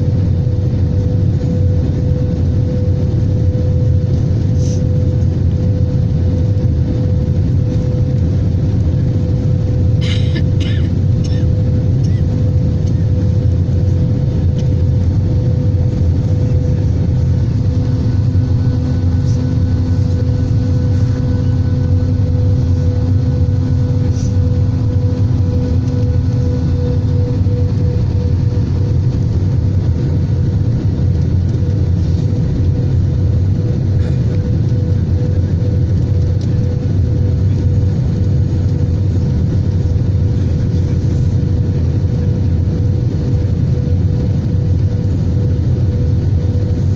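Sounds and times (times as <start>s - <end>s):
aircraft cabin engine rumble: 0.0s - 46.9s
steady hum: 0.0s - 46.9s.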